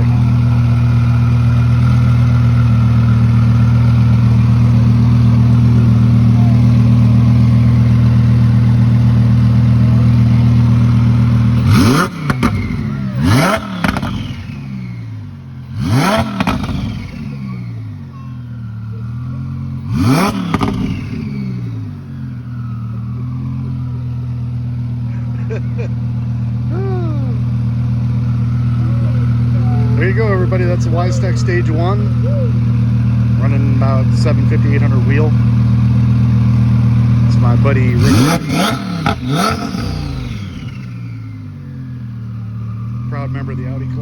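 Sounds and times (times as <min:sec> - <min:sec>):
car engine idling loudly: 0:00.0 - 0:44.0
sharp exhaust cracks: 0:00.3 - 0:14.7, 0:15.7 - 0:17.3
engine revving in quick blips: 0:11.5 - 0:22.0, 0:36.0 - 0:41.5.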